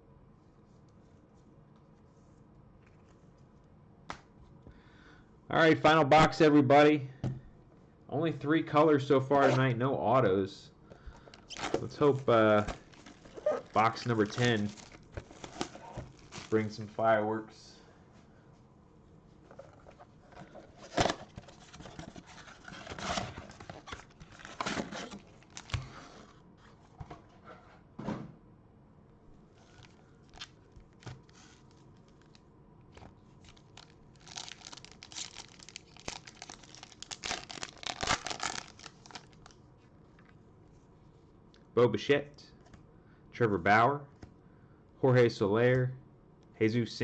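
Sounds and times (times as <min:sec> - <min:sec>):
plastic wrapping torn and crinkled: 0:11.3 - 0:16.7, 0:20.8 - 0:26.4, 0:29.6 - 0:32.4, 0:33.4 - 0:39.6.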